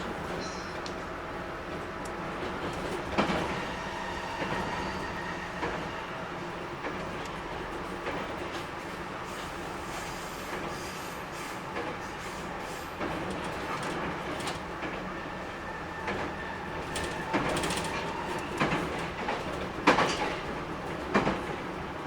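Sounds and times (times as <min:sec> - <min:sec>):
train wheels rumbling on rail: 0:00.0 - 0:22.0
wheel clacks over rail joints: 0:13.0 - 0:15.1, 0:16.0 - 0:21.8.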